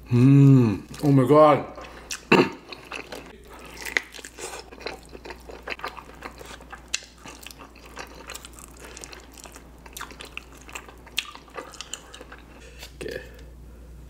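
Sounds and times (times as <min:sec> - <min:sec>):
wet chewing: 0:01.8 - 0:13.0.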